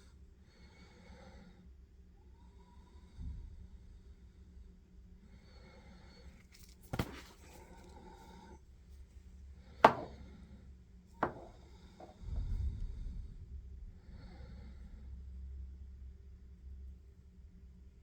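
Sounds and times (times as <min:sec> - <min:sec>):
low rumble of shells handled: 0:09.8 - 0:10.1, 0:11.2 - 0:12.5
shells knocking on hard surface: 0:09.9 - 0:10.2, 0:11.2 - 0:12.2.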